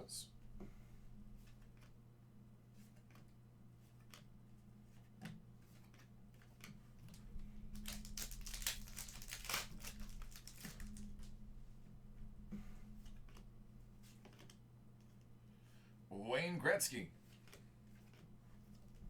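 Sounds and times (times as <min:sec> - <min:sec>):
faint electrical hum: 0:00.0 - 0:19.0
wrapper tearing and crinkling: 0:07.8 - 0:11.3.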